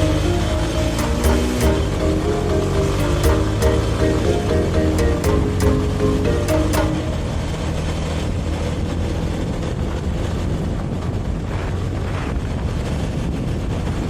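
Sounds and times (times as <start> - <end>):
wind rushing over microphone: 7.1 - 14.0.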